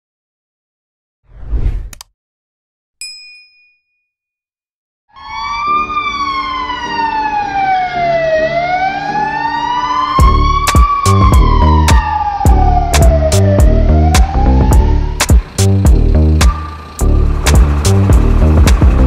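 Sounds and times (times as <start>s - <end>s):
emergency siren wailing: 5.1s - 19.0s
heavy drum beats: 10.2s - 16.6s, 17.5s - 19.0s.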